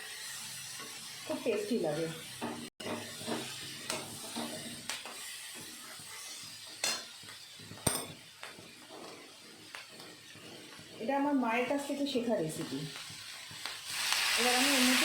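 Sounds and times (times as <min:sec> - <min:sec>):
spatula scraping a pan: 0:00.0 - 0:12.1
vegetables sizzling in a pan: 0:00.0 - 0:15.0.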